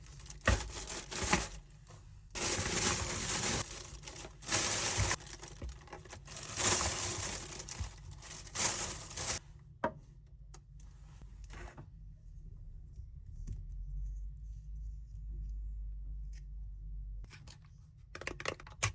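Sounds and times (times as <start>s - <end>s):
packaging tearing and crinkling: 0.0s - 1.6s, 2.4s - 9.4s.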